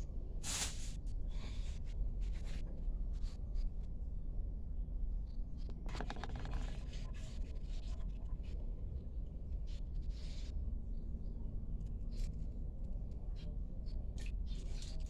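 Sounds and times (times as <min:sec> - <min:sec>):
hands scraping and tapping objects: 0:05.7 - 0:07.2.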